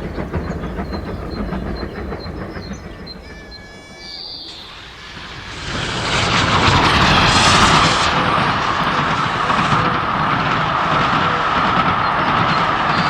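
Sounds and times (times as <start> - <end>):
train running: 0.0 - 13.0
train horn: 3.1 - 9.3
steady whine: 4.5 - 13.0.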